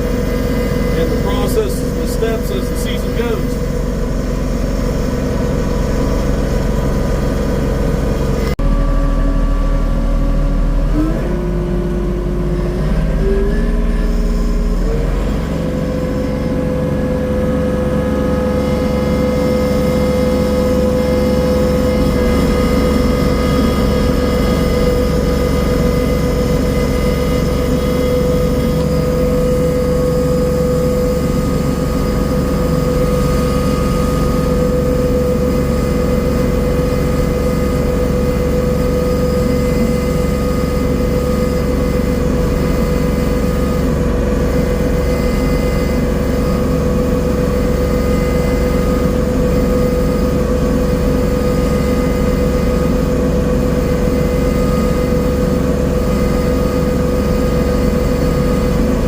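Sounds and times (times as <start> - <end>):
tiller engine running: 0.0 - 59.0.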